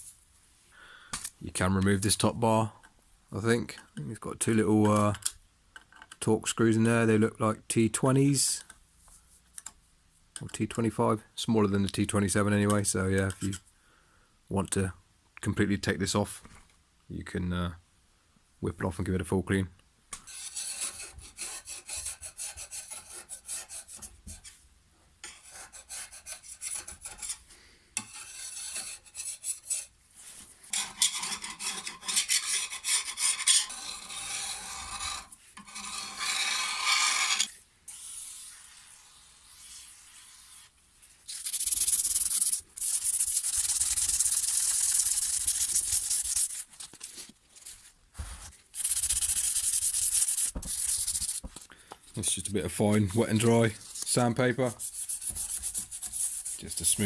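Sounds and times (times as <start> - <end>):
sandpaper rubbing on metal: 30.8 - 40.7, 41.3 - 46.7, 48.8 - 51.5, 53.3 - 57.0.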